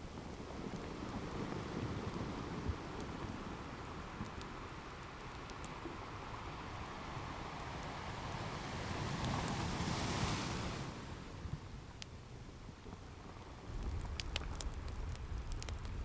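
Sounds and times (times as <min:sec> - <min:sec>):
fireplace crackling and popping: 0:00.0 - 0:07.8, 0:11.3 - 0:16.0
ocean surf rumbling: 0:06.0 - 0:11.3.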